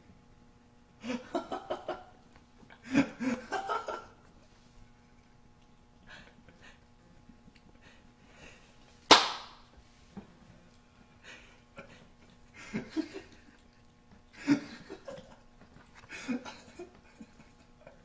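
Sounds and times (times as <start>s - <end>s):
dog chewing and smacking: 13.2s - 14.4s.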